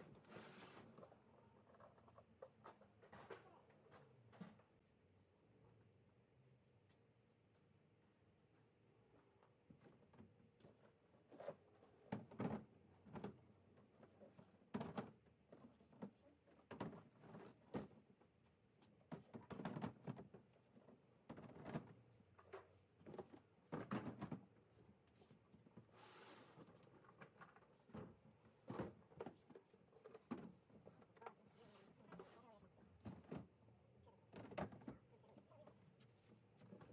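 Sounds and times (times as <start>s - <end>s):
brief hiss: 26.0s - 26.6s.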